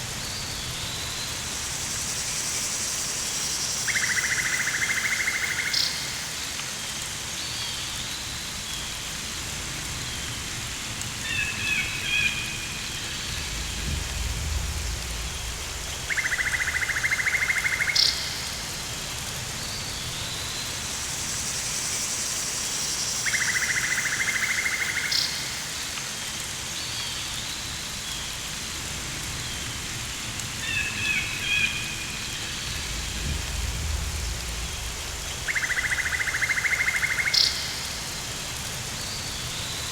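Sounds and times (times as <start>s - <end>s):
rain-like hiss: 0.0s - 39.9s
low rumble: 12.6s - 17.1s, 31.9s - 36.2s
bird-like chirps: 32.5s - 37.9s.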